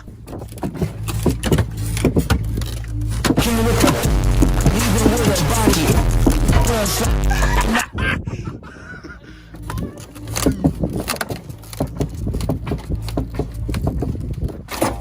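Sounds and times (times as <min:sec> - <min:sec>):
bucket scraping and crunching metal: 0:00.0 - 0:07.7, 0:10.2 - 0:15.0
excavator engine humming: 0:00.0 - 0:07.9.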